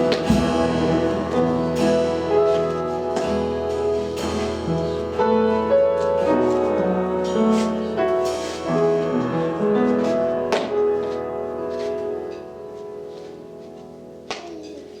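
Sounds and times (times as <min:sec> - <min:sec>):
light percussion strokes: 0:00.0 - 0:09.3
piano chords: 0:00.0 - 0:15.0.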